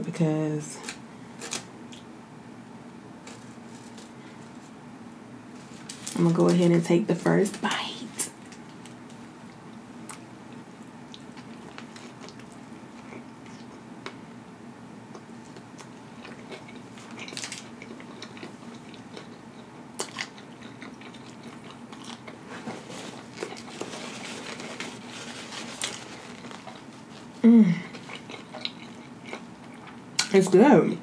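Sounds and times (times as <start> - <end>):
person chewing burger: 9.5 - 14.2, 15.1 - 30.1
mouth clicks and crunches: 15.1 - 30.4.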